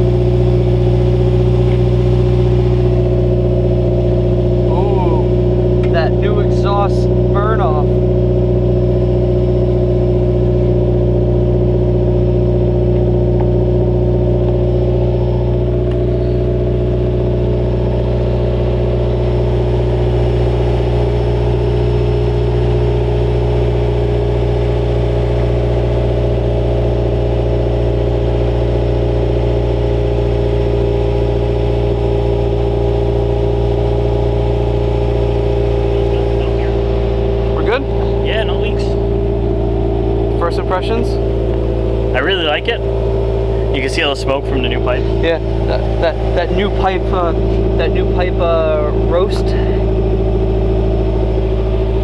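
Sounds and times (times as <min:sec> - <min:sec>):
car engine idling deep exhaust: 0:00.0 - 0:52.0.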